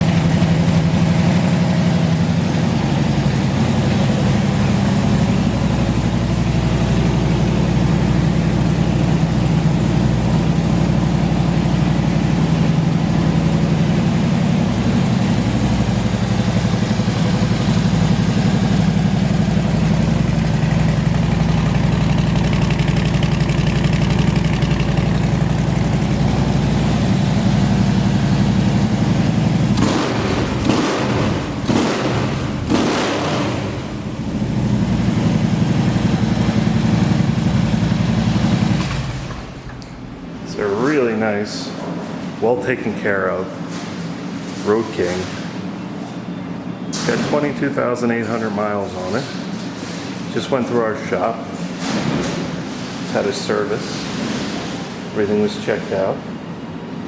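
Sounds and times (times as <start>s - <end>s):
motorcycle engine idling: 0.0s - 41.0s.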